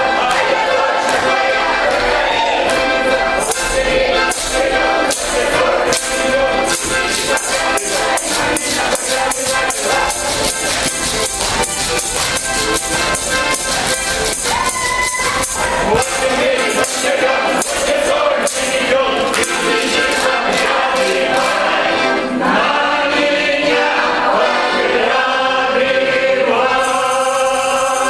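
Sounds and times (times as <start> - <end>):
person singing: 2.0 - 25.4
tambourine-like percussion beat: 3.2 - 21.7, 26.7 - 28.0.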